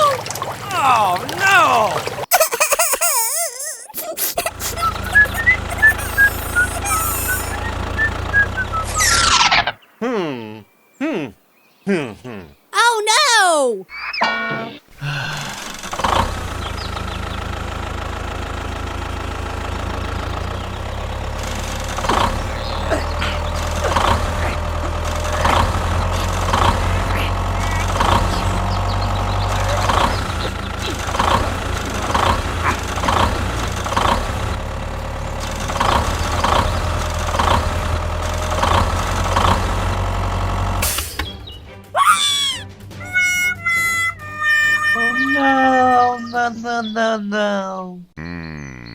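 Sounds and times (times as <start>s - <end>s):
tractor engine idling: 4.5s - 8.9s, 15.6s - 41.5s.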